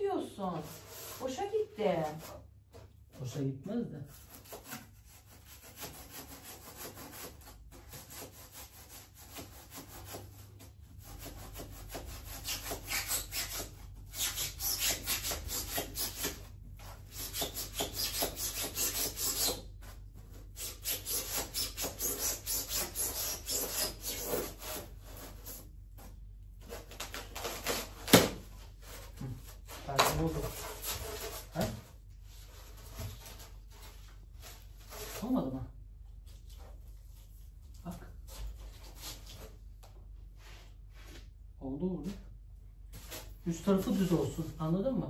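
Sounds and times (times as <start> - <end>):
knife sawing through styrofoam: 4.0 - 25.7, 26.6 - 31.8.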